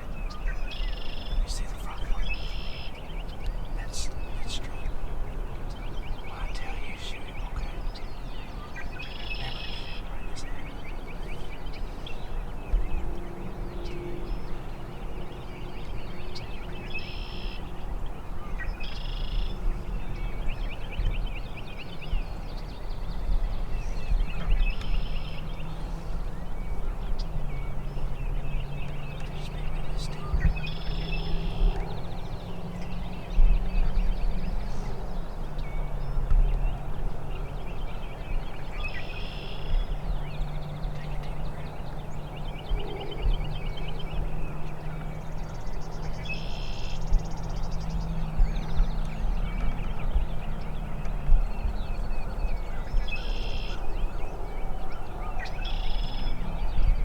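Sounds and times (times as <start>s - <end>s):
steady low rumble: 0.0s - 38.9s
small birds chirping: 0.0s - 57.0s.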